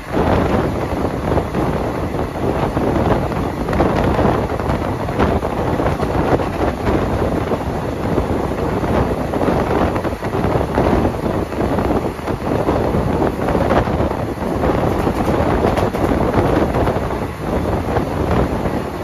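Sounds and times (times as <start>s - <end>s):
train wheels rumbling on track: 0.0s - 19.0s
wind rushing across microphone: 0.0s - 19.0s.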